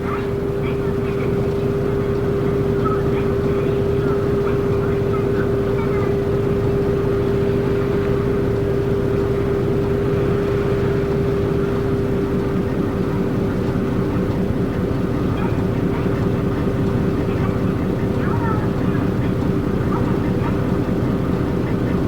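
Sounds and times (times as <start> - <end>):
bus diesel engine rumble: 0.0 - 22.0
constant engine hum: 0.0 - 22.0.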